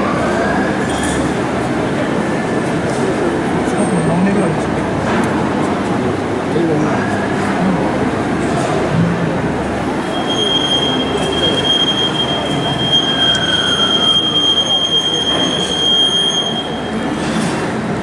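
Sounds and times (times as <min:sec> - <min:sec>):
high-pitched squeal: 0:10.0 - 0:17.4.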